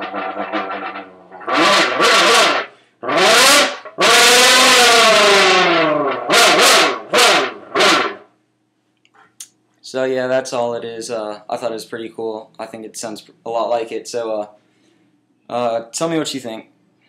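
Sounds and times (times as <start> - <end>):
mouth engine impression in a can: 0.0 - 4.6.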